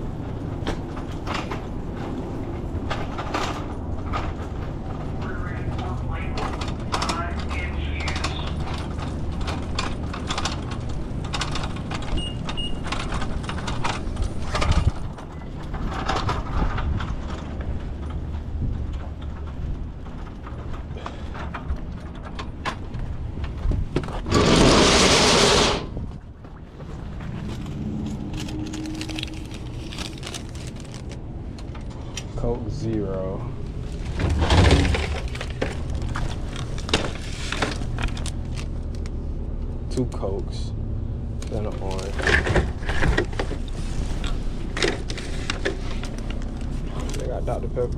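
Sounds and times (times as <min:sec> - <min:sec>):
steady low hum: 0:00.0 - 0:47.9
loud rushing noise: 0:24.3 - 0:26.0.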